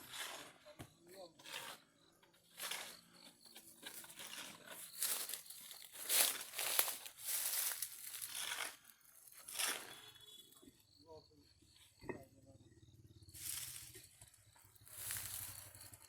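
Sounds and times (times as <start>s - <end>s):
rustling crinkling noise: 3.8s - 8.6s.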